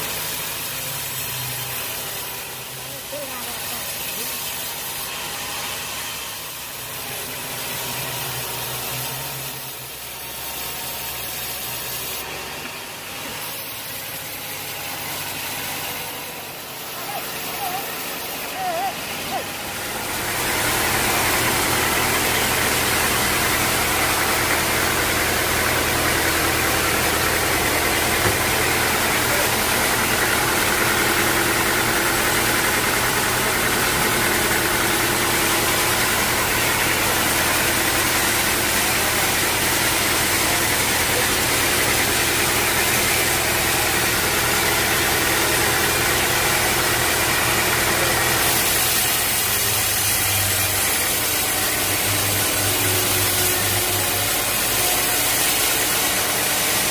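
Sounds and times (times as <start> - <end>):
sawmill machinery drone: 0.0 - 56.9.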